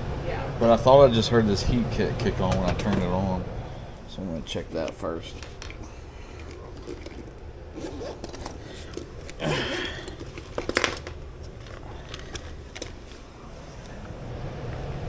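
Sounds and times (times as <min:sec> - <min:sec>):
steady low hum: 0:00.0 - 0:15.0
metal tools clinking and rattling: 0:04.4 - 0:13.5.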